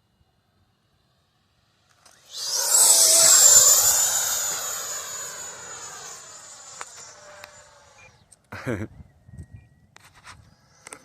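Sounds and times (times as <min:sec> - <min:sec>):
model jet fan whining past: 0:00.0 - 0:08.3.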